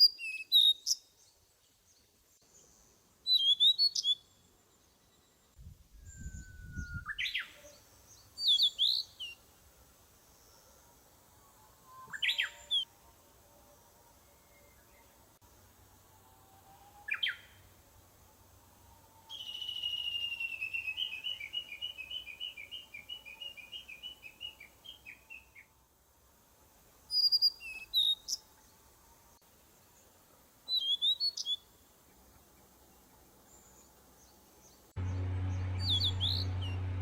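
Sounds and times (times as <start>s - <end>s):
songbird trill: 0.0s - 9.4s, 11.6s - 12.9s, 17.0s - 17.7s, 19.2s - 25.7s, 27.1s - 28.7s, 30.7s - 37.0s.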